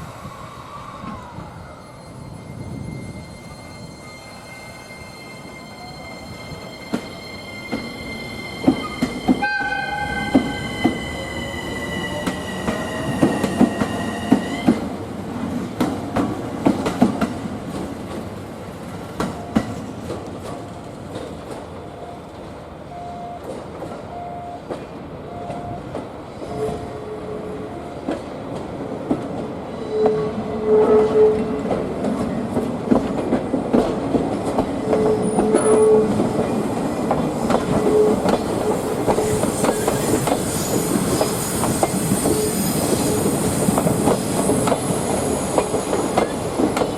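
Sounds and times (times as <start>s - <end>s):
train horn blast: 9.4s - 14.4s, 29.8s - 31.6s
train wheels clicking over rail joints: 12.0s - 18.4s, 31.6s - 46.9s
wheel squeals: 37.6s - 46.9s.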